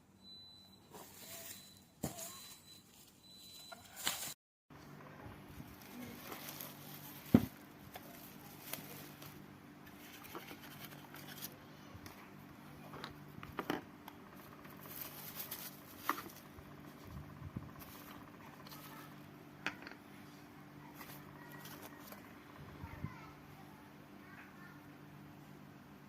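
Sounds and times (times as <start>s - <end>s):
objects clicking and tapping: 19.6s - 20.1s.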